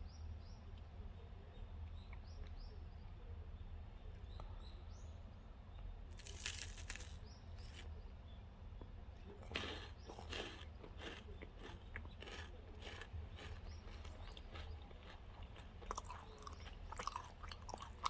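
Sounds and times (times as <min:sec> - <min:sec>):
chocolate wrapper crunching: 0:06.2 - 0:07.9, 0:09.6 - 0:15.2, 0:15.8 - 0:18.0.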